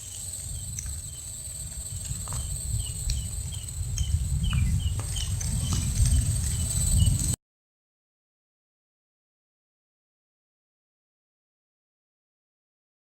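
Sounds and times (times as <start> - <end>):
insects droning: 0.0 - 7.4
low rumble: 0.0 - 7.4
short insect chirps: 0.0 - 7.4.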